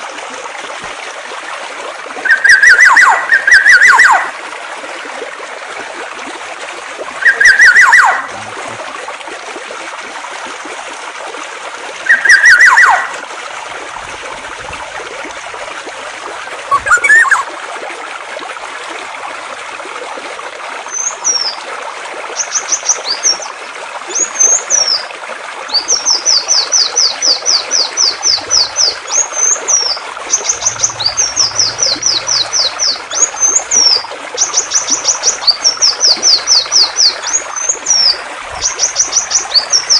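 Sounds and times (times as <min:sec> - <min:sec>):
trickling stream water: 0:00.0 - 0:39.9
bird calls with falling sweep: 0:02.2 - 0:04.3, 0:07.2 - 0:08.3, 0:12.0 - 0:13.2, 0:16.5 - 0:17.5, 0:29.8 - 0:34.0
high rapid bird song with trills: 0:12.0 - 0:13.2, 0:16.5 - 0:17.4.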